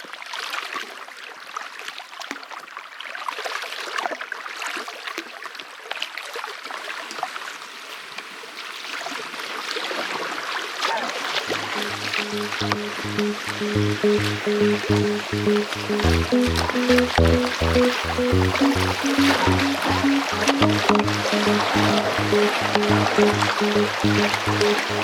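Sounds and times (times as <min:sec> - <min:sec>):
music: 0:11.6 - 0:25.0.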